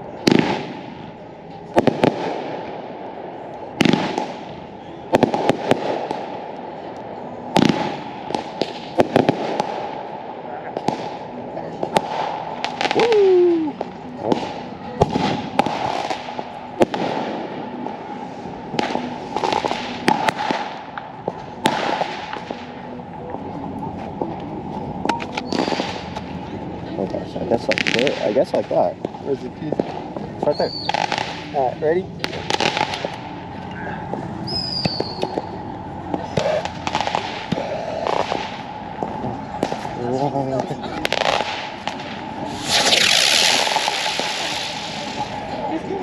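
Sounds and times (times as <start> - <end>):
fireworks crackling: 0.0 - 23.5, 24.1 - 46.0
firework bangs: 0.2 - 2.8, 3.8 - 6.4, 7.5 - 10.1, 10.7 - 17.9, 18.6 - 22.7, 25.4 - 26.2, 27.6 - 33.3, 34.5 - 45.8
firework whistle: 12.8 - 13.8, 25.4 - 26.0, 30.5 - 31.3, 34.4 - 35.5, 42.4 - 45.4.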